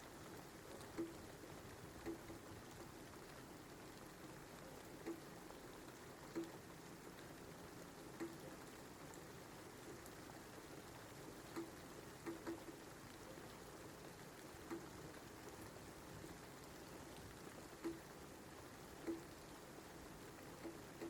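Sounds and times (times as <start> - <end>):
faint rain: 0.0 - 21.0
drips plinking on a surface: 17.8 - 18.0.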